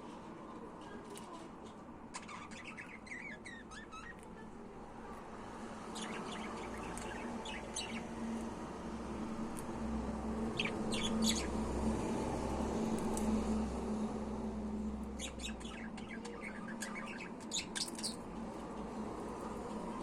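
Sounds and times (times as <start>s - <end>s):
budgerigar chirping: 10.6s - 11.5s, 15.2s - 18.2s.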